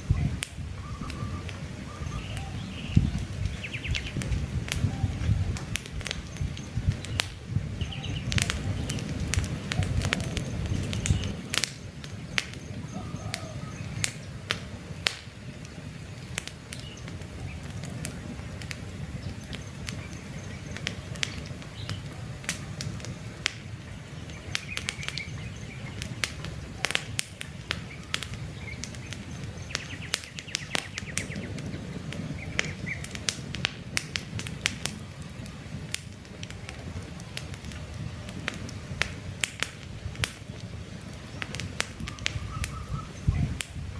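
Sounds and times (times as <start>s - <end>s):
bird chirps: 0.0s - 4.2s, 6.2s - 14.3s, 23.9s - 26.9s, 27.8s - 33.1s, 41.3s - 43.6s
campfire crackling and popping: 0.0s - 43.9s
low rumble of flames: 0.0s - 43.9s.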